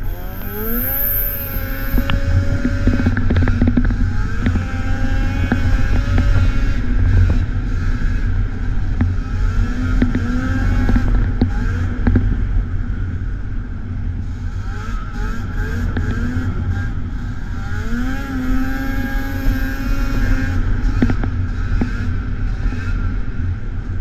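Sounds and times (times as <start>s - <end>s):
two-stroke snowmobile engine revving: 0.0s - 8.2s.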